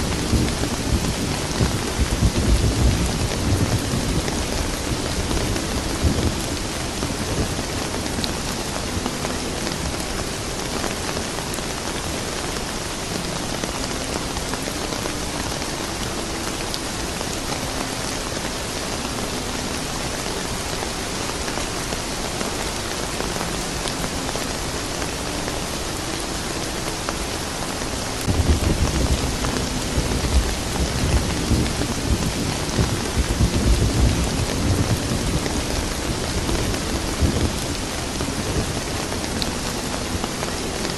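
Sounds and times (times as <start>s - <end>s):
rolling thunder: 0.0s - 8.3s, 28.2s - 39.5s
steady rain falling: 0.0s - 40.9s.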